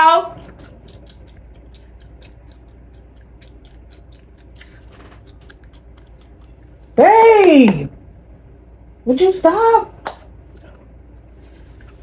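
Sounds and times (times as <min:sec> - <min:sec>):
person chewing gum: 0:00.3 - 0:07.0.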